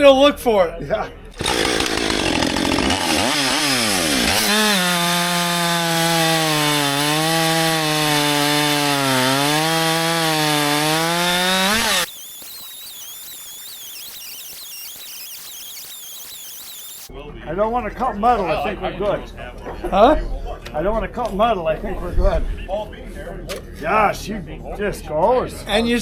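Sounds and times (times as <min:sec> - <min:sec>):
chainsaw cutting log: 0:01.4 - 0:13.8.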